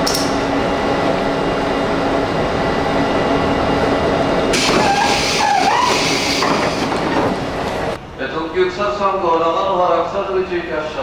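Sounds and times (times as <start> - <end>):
electric train humming: 0.0 - 11.0
air hiss of closing door: 4.5 - 7.0.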